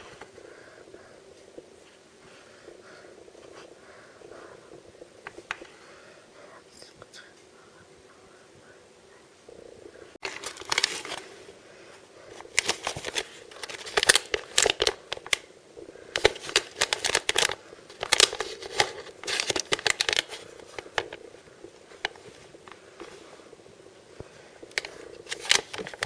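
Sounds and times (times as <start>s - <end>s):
packaging crinkling and tearing: 10.2s - 11.4s, 12.3s - 15.5s, 16.2s - 21.2s, 24.7s - 26.0s.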